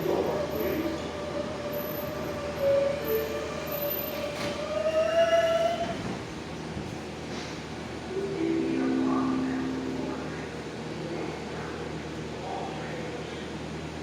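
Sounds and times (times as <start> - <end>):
subway train whine and rumble: 0.0 - 14.0.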